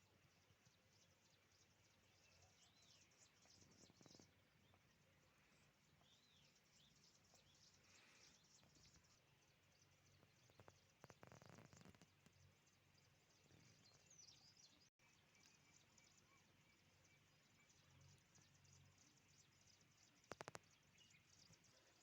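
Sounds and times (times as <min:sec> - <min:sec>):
bird chirps: 0:00.0 - 0:22.0.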